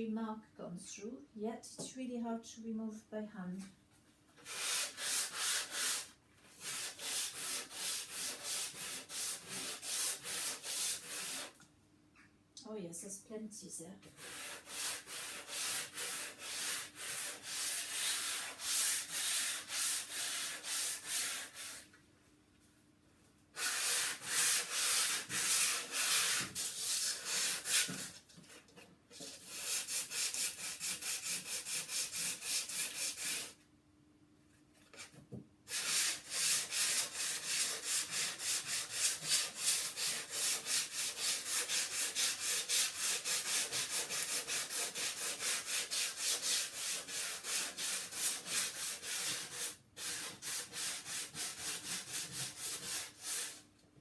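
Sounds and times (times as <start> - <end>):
sandpaper rubbing on wood: 4.4 - 11.5, 14.1 - 21.8, 23.6 - 28.1, 29.2 - 33.6, 35.7 - 53.6.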